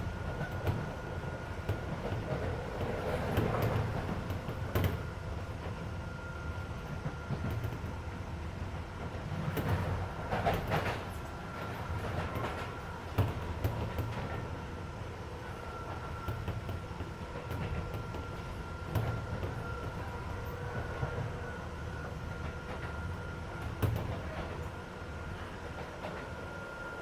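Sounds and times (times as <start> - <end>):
rail-joint clacks: 0.0 - 27.0
train wheels rumbling: 0.0 - 27.0.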